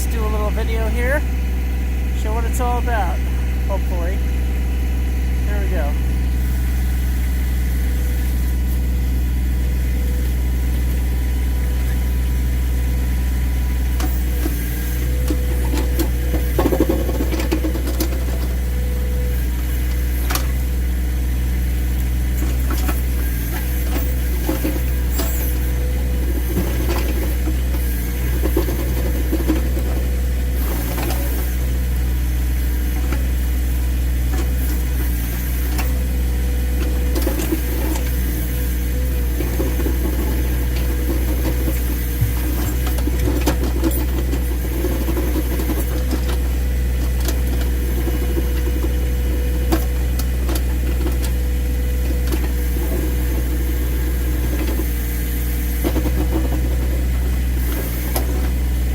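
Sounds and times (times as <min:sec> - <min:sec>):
tractor diesel engine running: 0:00.0 - 0:58.9
backhoe bucket scraping ice: 0:22.2 - 0:31.7, 0:34.2 - 0:58.9.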